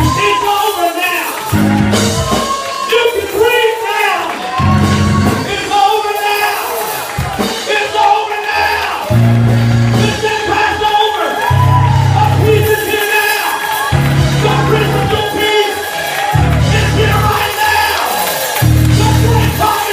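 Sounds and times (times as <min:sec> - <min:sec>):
heavy bass notes: 0:00.0 - 0:00.4, 0:01.6 - 0:02.3, 0:04.6 - 0:05.7, 0:09.1 - 0:10.8, 0:11.5 - 0:12.9, 0:13.9 - 0:15.5, 0:16.3 - 0:17.6, 0:18.6 - 0:19.9
church praise music: 0:00.0 - 0:19.9
voices shouting and singing: 0:00.0 - 0:19.9.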